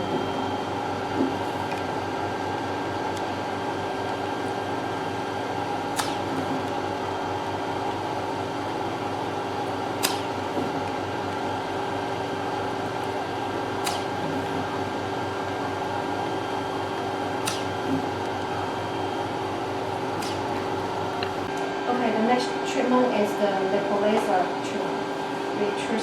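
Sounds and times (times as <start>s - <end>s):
vacuum pump humming: 0.0s - 26.0s
sharp machine click: 5.9s - 6.5s, 10.0s - 10.5s, 13.8s - 14.5s, 17.4s - 18.0s, 20.2s - 21.3s.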